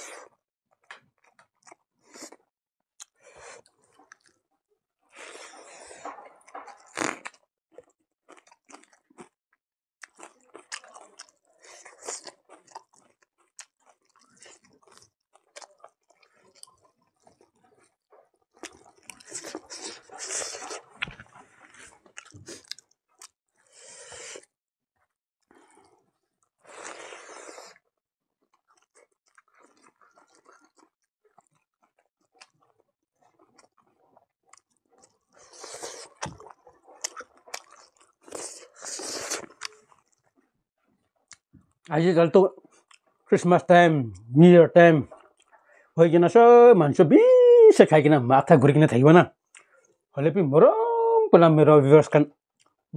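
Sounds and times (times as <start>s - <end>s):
wet chewing noises: 3.0s - 4.4s, 10.0s - 24.5s, 28.4s - 41.9s, 42.6s - 43.3s, 45.1s - 45.8s.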